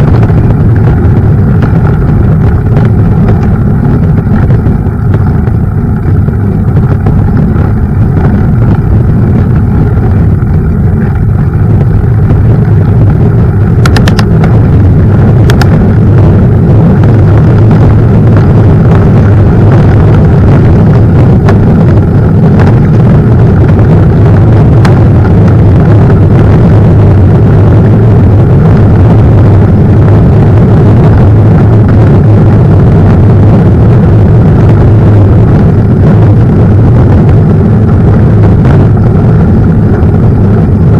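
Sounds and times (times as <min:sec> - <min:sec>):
bike tyre noise on trail: 0:00.0 - 0:40.9
wind buffeting microphone: 0:00.0 - 0:40.9
sharp clicks: 0:13.8 - 0:14.6, 0:15.4 - 0:15.7.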